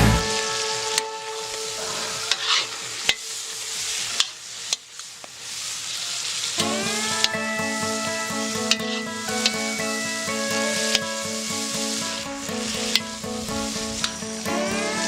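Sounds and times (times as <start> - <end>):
music: 0.0 - 2.4, 6.6 - 15.0
food sizzling in a pot: 0.2 - 15.0.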